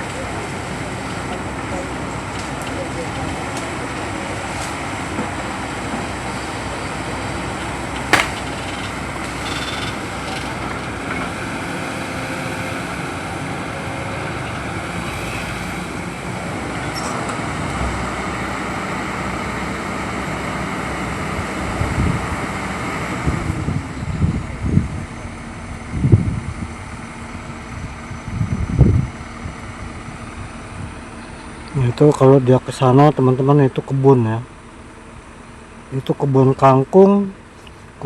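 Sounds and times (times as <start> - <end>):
engine noise: 0.0 - 36.0
low thumps: 8.1 - 8.9
sharp click: 8.1 - 10.4.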